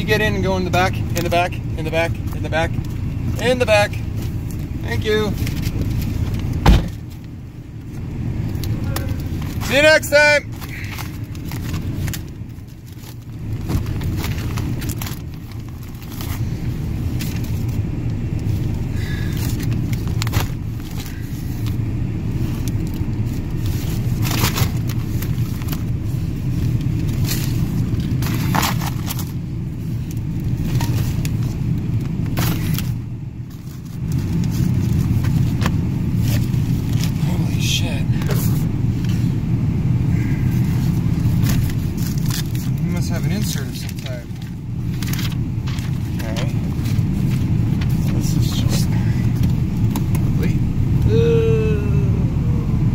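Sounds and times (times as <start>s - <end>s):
car engine and tyres rumbling: 0.0s - 52.9s
clicks and knocks in car cabin: 5.2s - 7.3s.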